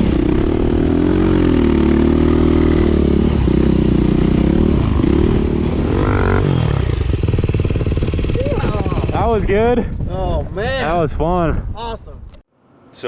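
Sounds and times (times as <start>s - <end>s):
dirt bike engine revving: 0.0s - 9.7s.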